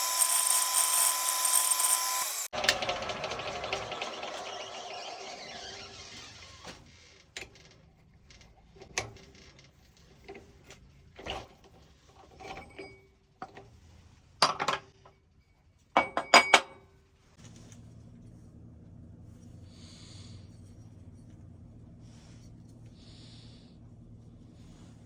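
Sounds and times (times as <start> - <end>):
small metal parts clinking: 0.0 - 2.4.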